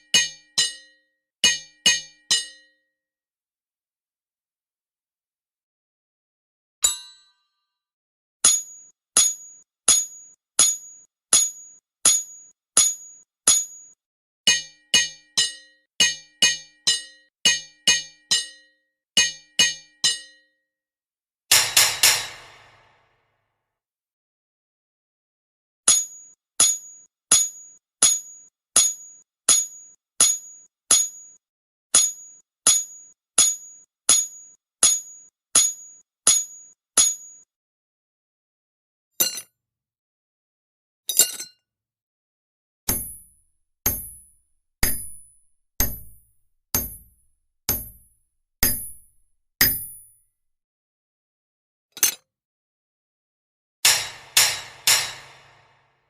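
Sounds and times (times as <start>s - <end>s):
hammer striking anvil: 0.2s - 2.7s, 21.5s - 23.1s, 42.9s - 50.2s, 53.8s - 55.9s
sharp metallic clinks: 53.9s - 55.7s.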